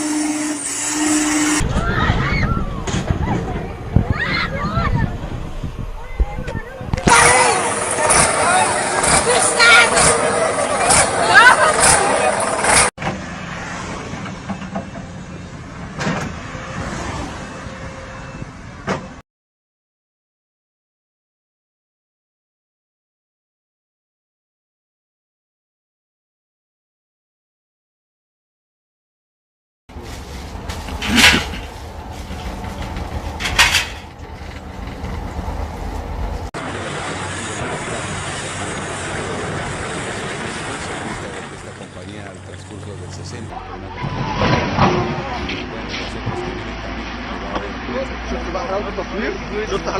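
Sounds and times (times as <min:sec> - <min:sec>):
steady low rumble: 0:01.6 - 0:07.0
heavy vehicle engine running: 0:02.6 - 0:19.2, 0:29.9 - 0:49.9
loud clattering impacts: 0:30.6 - 0:35.7.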